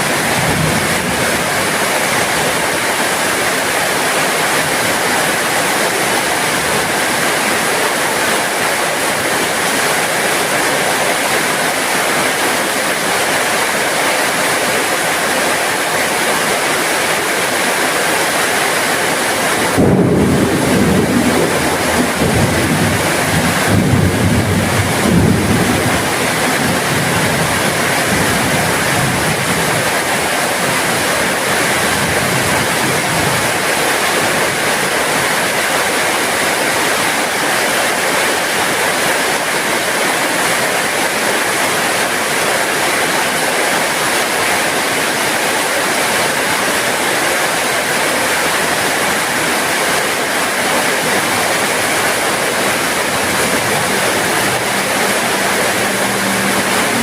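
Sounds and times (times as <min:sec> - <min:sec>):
heavy rain: 0:00.0 - 0:57.0
thunder rumbling: 0:19.5 - 0:29.7, 0:51.7 - 0:57.0.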